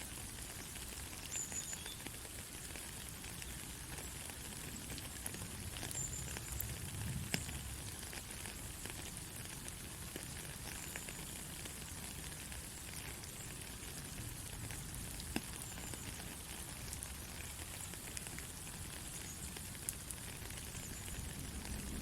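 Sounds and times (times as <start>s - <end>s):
light rain falling: 0.0s - 22.0s.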